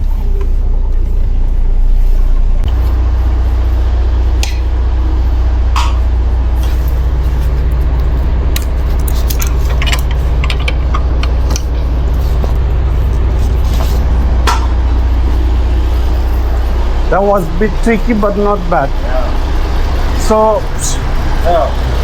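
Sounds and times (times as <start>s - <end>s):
truck diesel engine droning: 0.0s - 22.0s
sharp clicks and rattles: 5.7s - 22.0s.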